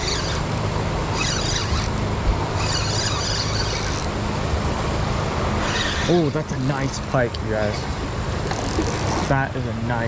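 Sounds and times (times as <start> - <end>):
fishing reel squealing: 0.0 - 4.2, 5.6 - 6.7, 8.5 - 9.3.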